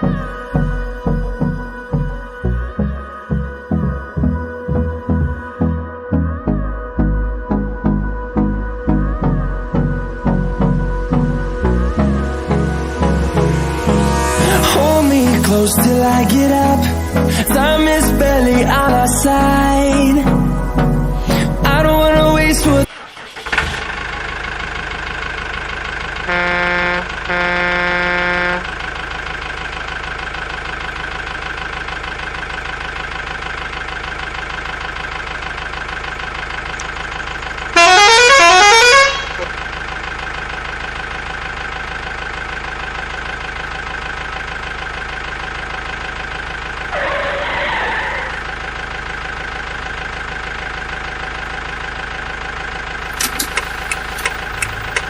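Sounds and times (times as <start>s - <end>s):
truck engine running: 0.0s - 55.0s
truck horn honking: 26.2s - 28.9s, 37.7s - 39.6s.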